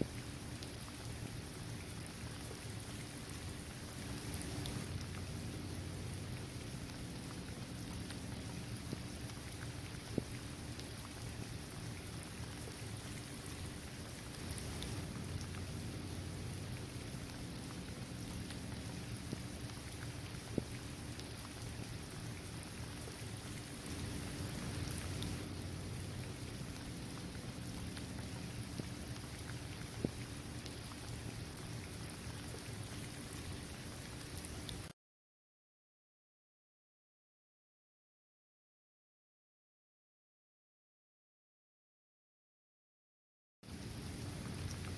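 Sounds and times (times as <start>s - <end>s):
steady rain falling: 0.0s - 34.9s, 43.7s - 44.9s
single raindrops ticking: 4.0s - 5.3s, 14.3s - 21.6s, 23.8s - 31.0s
sharp water drip: 4.0s - 33.1s.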